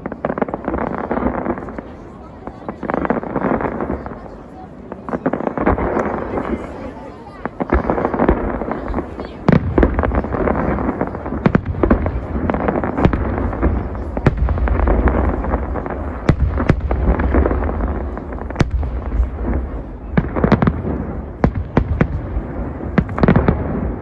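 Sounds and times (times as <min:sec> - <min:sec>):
rumble of firework bursts: 0:04.9 - 0:24.0
sharp firework cracks and bangs: 0:07.4 - 0:24.0.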